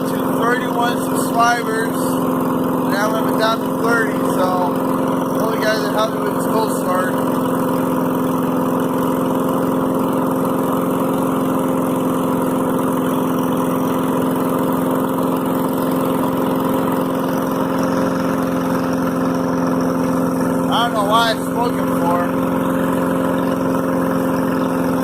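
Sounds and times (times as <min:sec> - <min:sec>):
person talking: 0:00.0 - 0:02.2, 0:02.9 - 0:07.2, 0:20.7 - 0:22.4
petrol engine idling: 0:00.0 - 0:25.0.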